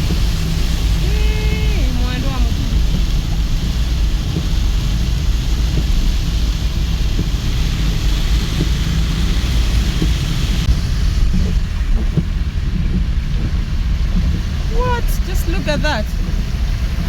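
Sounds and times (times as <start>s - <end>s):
heavy rain and tyre spray: 0.0s - 17.0s
vehicle driving on wet road: 0.0s - 17.0s.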